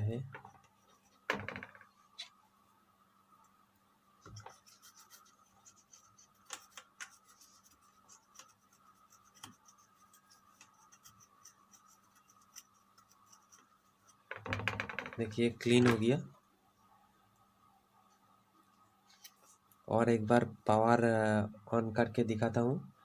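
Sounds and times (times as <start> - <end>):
faint steady hum: 0.0 - 23.0
scratching and rubbing: 4.2 - 15.2.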